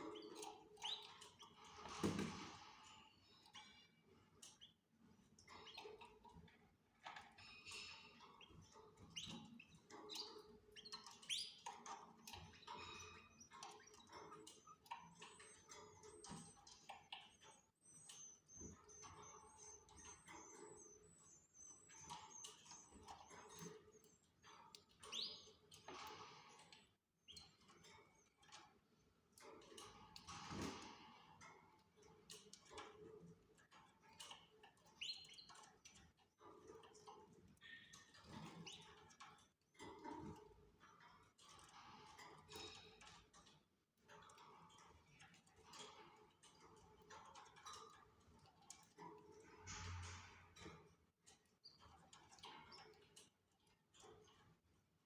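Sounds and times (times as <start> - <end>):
canaries chirping faintly: 0.0 - 28.8.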